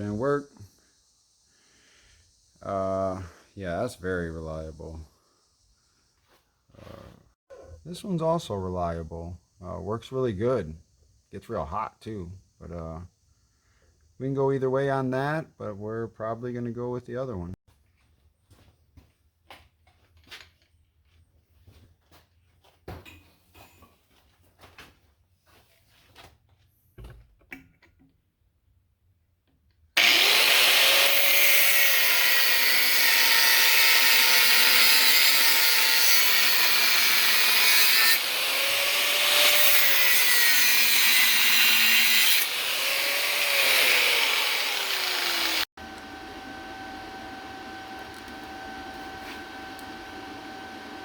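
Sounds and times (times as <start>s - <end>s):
power tool grinding metal: 30.0s - 51.0s.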